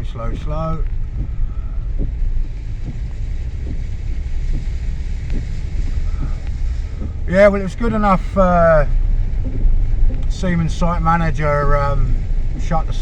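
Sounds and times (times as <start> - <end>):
faint knocks: 0.0 - 7.3, 9.4 - 10.4
low rumble of car in water: 0.0 - 13.0.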